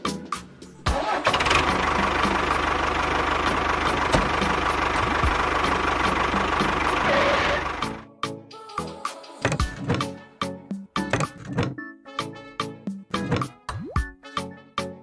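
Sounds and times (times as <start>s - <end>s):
background music with beat: 0.0s - 0.9s, 7.8s - 15.0s.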